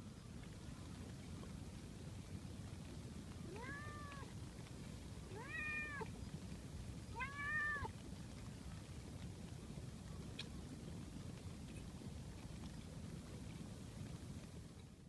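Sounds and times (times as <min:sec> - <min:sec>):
cat meowing: 0:03.5 - 0:04.3, 0:05.3 - 0:06.1, 0:07.2 - 0:07.9.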